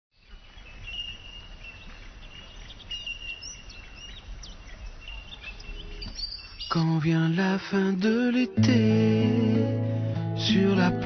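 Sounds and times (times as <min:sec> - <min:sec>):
birds chirping: 0:00.2 - 0:07.4.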